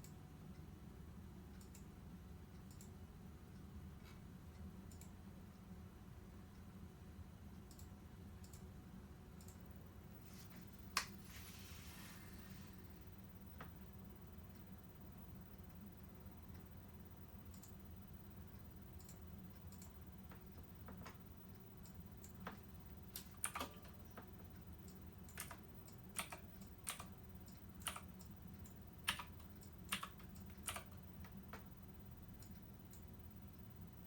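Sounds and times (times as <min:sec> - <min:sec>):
faint low hum: 0:00.0 - 0:34.0
keys clicking: 0:23.2 - 0:24.0, 0:25.3 - 0:28.3, 0:29.1 - 0:31.0.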